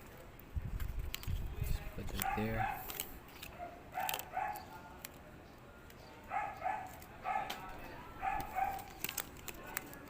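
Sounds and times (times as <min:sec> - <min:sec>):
dog barking: 0:02.2 - 0:02.9, 0:03.6 - 0:04.7, 0:06.3 - 0:07.6, 0:08.2 - 0:08.9.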